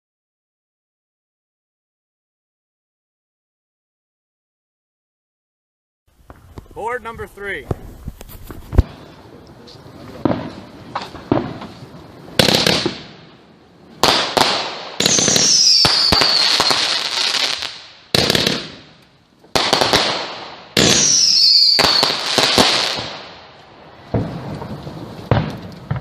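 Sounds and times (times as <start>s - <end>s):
firework bangs: 6.2s - 26.0s
rushing crackle: 23.5s - 26.0s.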